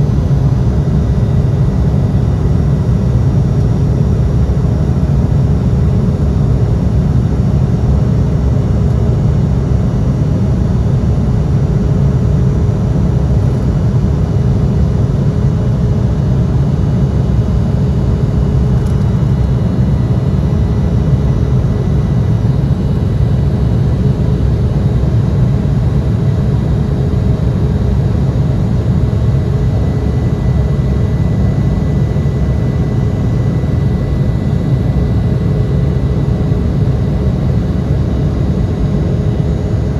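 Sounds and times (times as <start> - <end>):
jet engines low rumble: 0.0 - 39.9.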